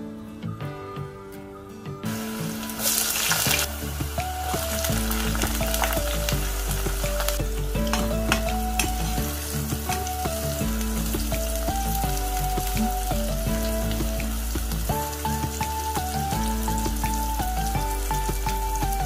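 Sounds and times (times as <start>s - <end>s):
background music: 0.0s - 19.0s
deep-frying sizzle with crackles: 2.1s - 19.0s.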